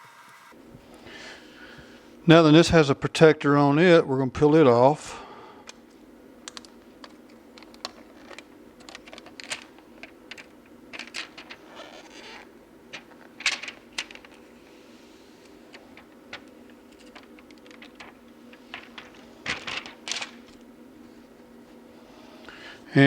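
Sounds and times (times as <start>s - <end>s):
protective film peeling: 6.5s - 20.7s.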